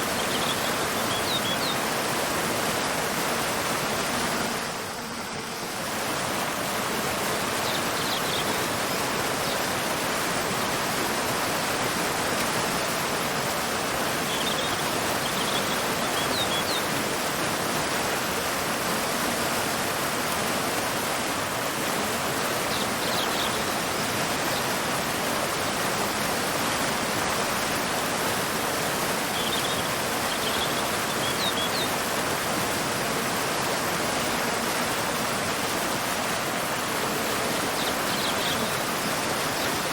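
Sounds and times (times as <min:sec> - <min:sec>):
waterfall rushing: 0:00.0 - 0:39.9
faint bird chirps: 0:29.3 - 0:31.9.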